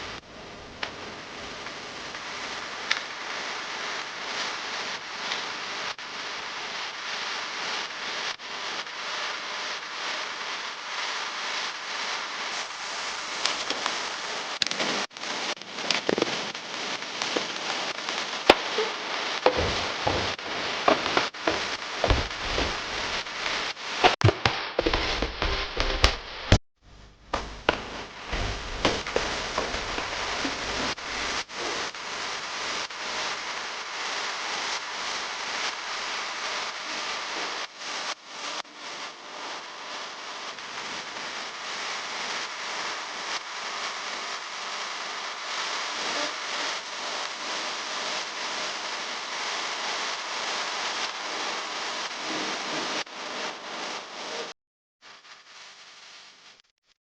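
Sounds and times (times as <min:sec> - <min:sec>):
louder knocks: 0:19.5 - 0:26.6.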